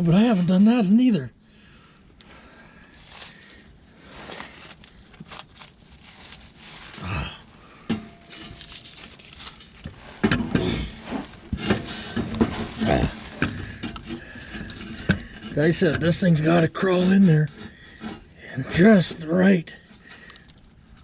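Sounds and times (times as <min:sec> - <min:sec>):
metal scraping and knocking: 0:07.8 - 0:20.0.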